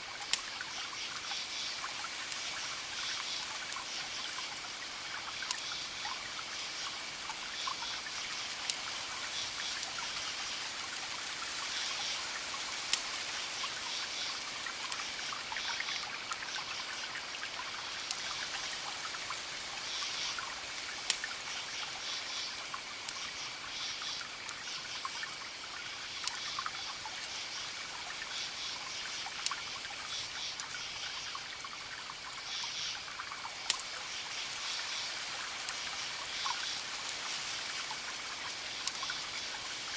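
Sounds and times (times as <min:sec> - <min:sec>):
crickets chirping: 0:00.0 - 0:39.9
campfire crackling and popping: 0:00.1 - 0:39.9.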